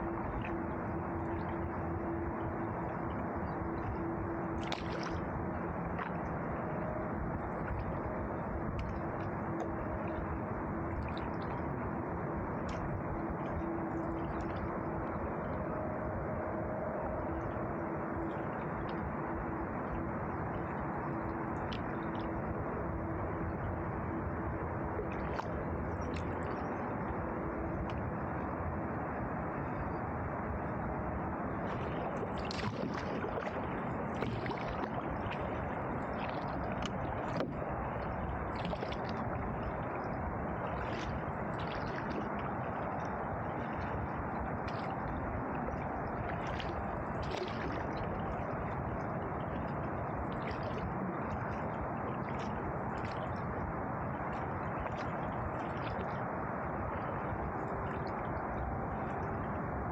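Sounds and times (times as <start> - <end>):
paddle splashing water: 3.8 - 11.6, 31.6 - 59.4.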